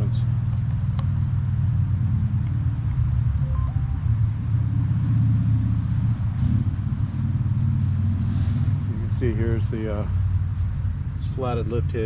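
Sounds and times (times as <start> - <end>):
garden tractor engine idling: 2.4 - 12.0.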